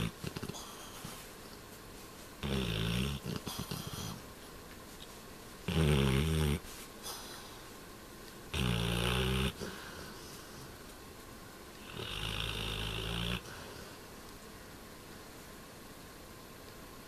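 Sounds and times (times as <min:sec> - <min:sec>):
dog snoring: 0:00.0 - 0:01.2, 0:02.4 - 0:04.2, 0:05.7 - 0:07.5, 0:08.5 - 0:10.7, 0:11.8 - 0:14.0
dog breathing quietly: 0:00.0 - 0:04.3, 0:06.5 - 0:07.8, 0:09.3 - 0:10.9.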